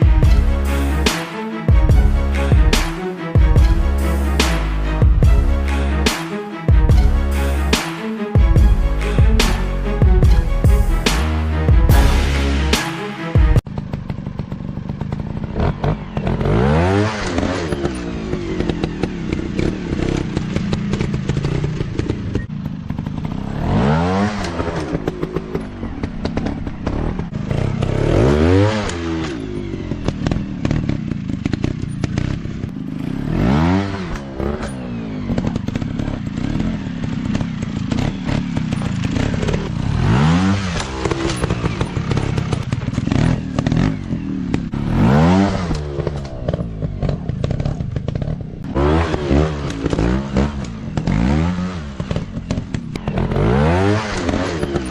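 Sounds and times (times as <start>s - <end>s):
dirt bike engines revving: 13.7s - 54.9s.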